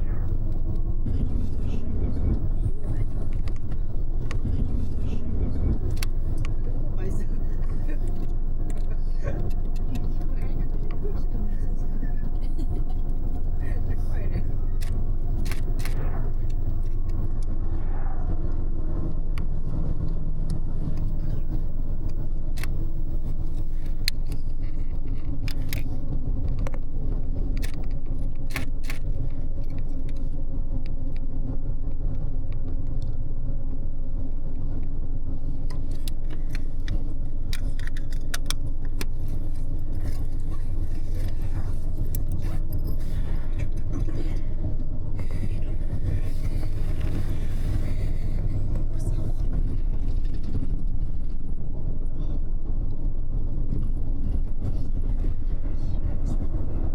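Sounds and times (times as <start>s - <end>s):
small rattles and clicks: 0.0s - 17.5s, 20.0s - 31.3s, 35.6s - 51.6s
bus engine and road rumble: 0.0s - 56.9s.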